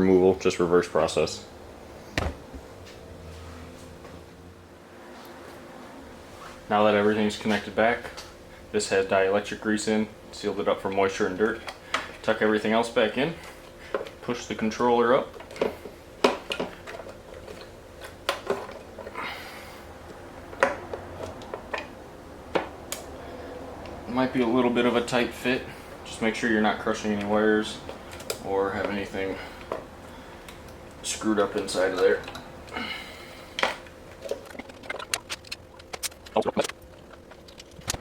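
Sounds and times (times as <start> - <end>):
wiring rustling: 10.4 - 38.0
parts clicking and knocking: 15.2 - 19.2, 20.0 - 23.2, 27.1 - 32.8, 33.5 - 38.0.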